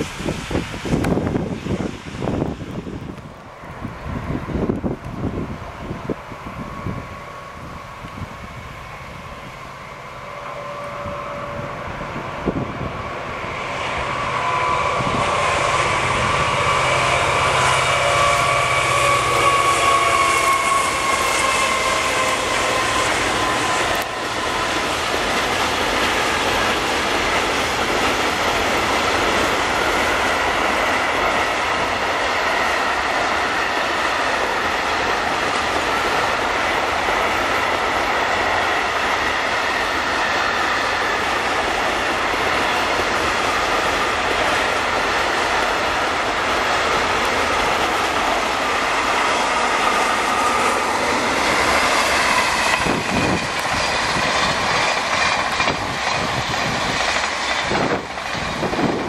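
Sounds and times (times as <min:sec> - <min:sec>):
high-speed train passing: 0:00.0 - 0:59.0
train wheels rolling on rails: 0:00.0 - 0:59.0
high wheel squeal: 0:06.5 - 0:27.3
clickety-clack over rail joints: 0:15.0 - 0:59.0.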